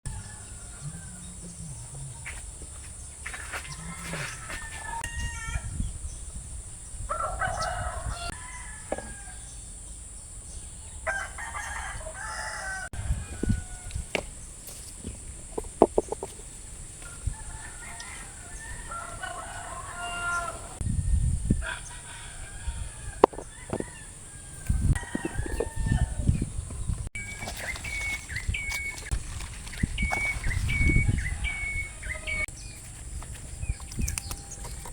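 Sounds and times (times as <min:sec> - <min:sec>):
rooster crowing: 0:03.5 - 0:05.7, 0:07.1 - 0:09.5, 0:11.0 - 0:14.0, 0:17.1 - 0:20.8, 0:21.6 - 0:26.4, 0:31.0 - 0:32.5.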